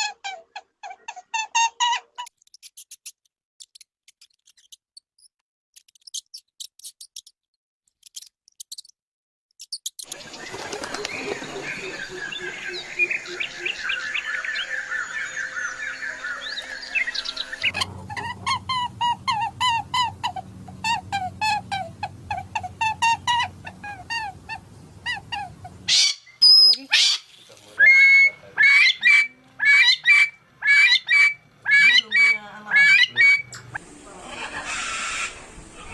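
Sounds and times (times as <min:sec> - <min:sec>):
birds chirping: 0:10.0 - 0:33.8
animal yelping call: 0:17.7 - 0:33.8.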